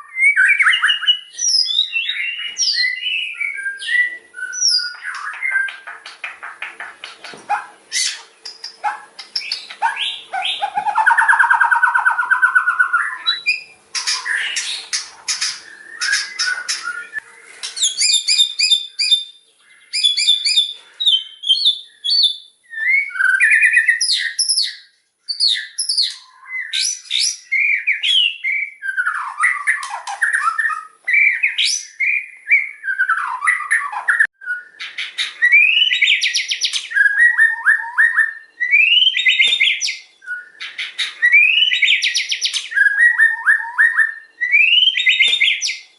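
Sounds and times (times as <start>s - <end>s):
songbird singing trills and whistles: 0.0s - 45.9s
harsh rattling bird call: 4.6s - 19.2s.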